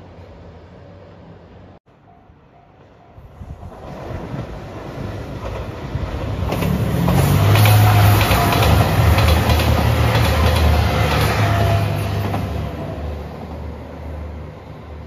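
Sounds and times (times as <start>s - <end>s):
wheels clacking over rail joints: 5.3s - 12.8s.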